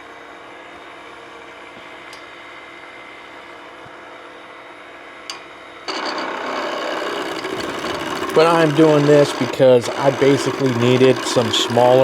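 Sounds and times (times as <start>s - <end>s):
faint high whine: 0.0s - 12.0s
wood lathe humming: 5.9s - 12.0s.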